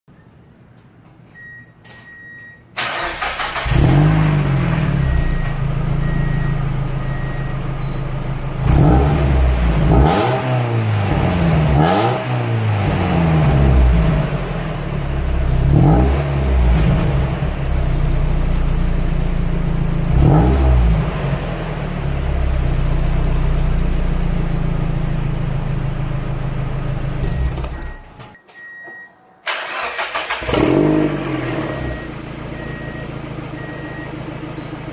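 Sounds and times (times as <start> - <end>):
car engine idling and revving: 2.8 - 28.2, 29.5 - 34.9
short beeping tone: 5.0 - 8.2.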